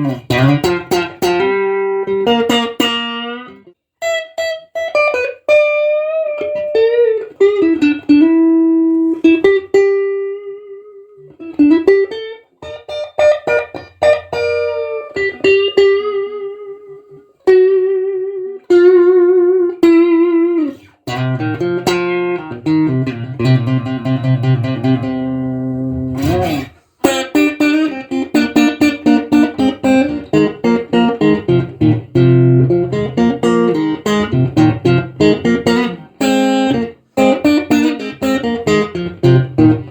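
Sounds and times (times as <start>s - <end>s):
electric guitar through an amp: 0.0s - 39.9s.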